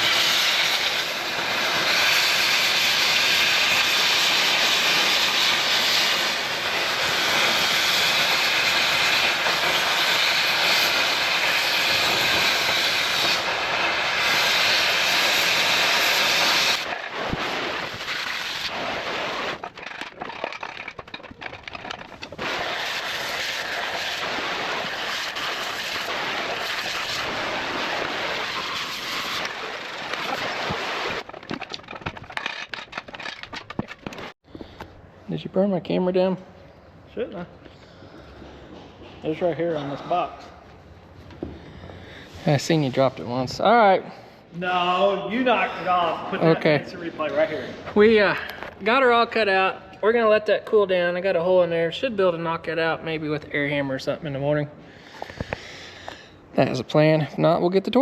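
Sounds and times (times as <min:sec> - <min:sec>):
cutting torch hissing: 0:00.0 - 0:20.1, 0:22.2 - 0:31.3
torch crackling: 0:00.0 - 0:34.4.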